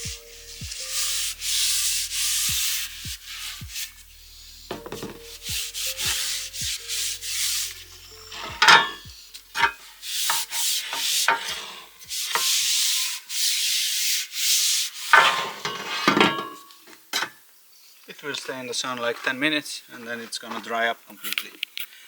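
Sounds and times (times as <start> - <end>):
rubbing strokes on wooden handle: 0.0 - 15.4.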